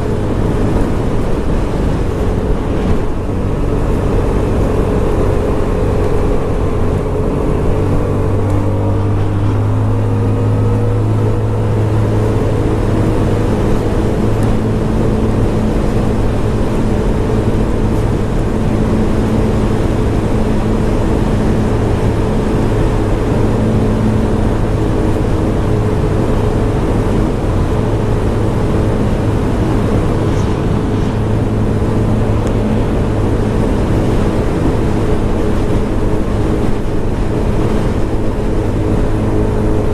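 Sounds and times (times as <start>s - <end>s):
scooter engine running: 0.0s - 39.9s
wind and road noise: 0.0s - 39.9s.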